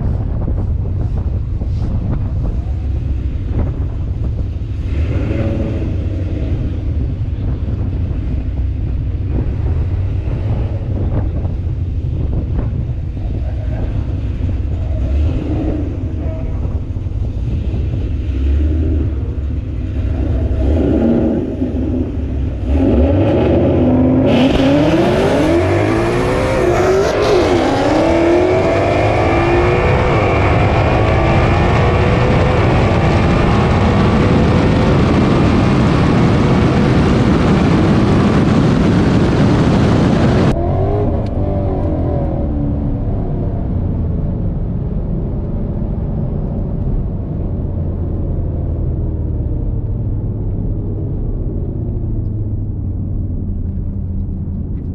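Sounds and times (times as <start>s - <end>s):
car engine revving: 2.5s - 44.2s.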